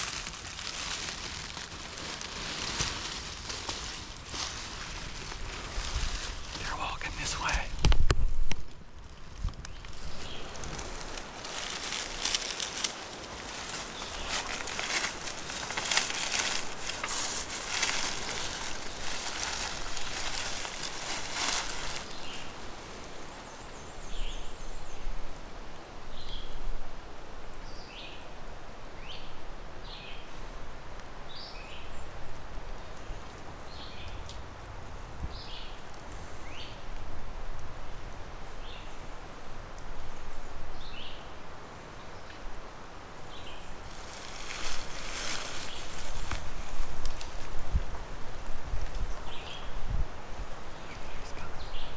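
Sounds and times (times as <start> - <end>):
rustling in dry leaves: 0.0 - 51.9
small bird chirping: 10.0 - 24.8.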